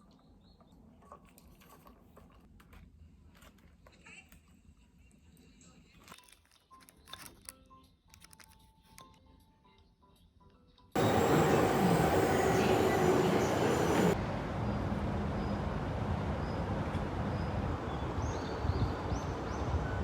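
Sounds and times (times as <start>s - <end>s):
train running rumble: 11.0s - 20.0s.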